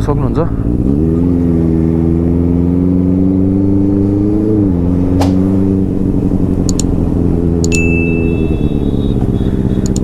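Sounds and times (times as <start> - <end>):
motorcycle engine running: 4.7 - 10.0
sharp tick: 6.6 - 6.9, 9.8 - 10.0.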